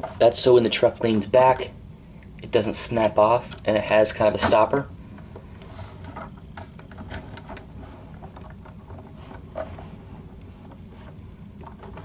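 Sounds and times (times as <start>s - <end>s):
low steady hum: 0.0s - 12.0s
plastic parts clicking and rubbing: 3.0s - 12.0s.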